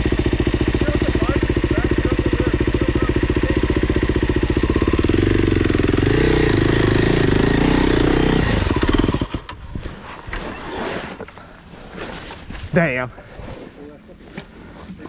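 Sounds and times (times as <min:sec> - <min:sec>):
dirt bike engine: 0:00.0 - 0:14.7.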